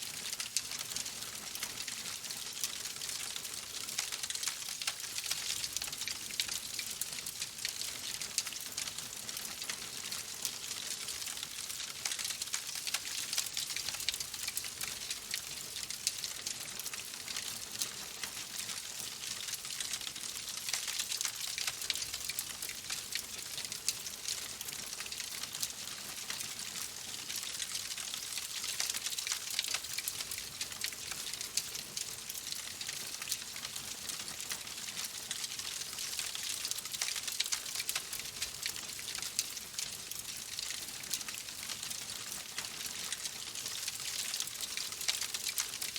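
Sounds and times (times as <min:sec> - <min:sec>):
wood fire crackling: 0:27.9 - 0:45.9.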